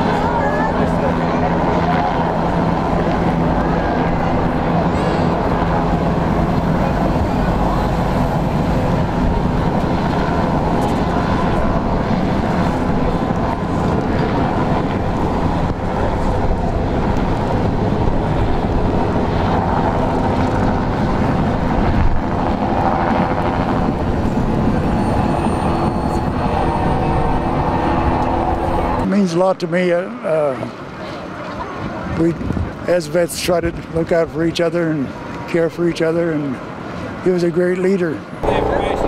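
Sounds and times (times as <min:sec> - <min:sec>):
diesel train passing: 0:00.0 - 0:22.1, 0:23.4 - 0:29.1, 0:38.4 - 0:39.0.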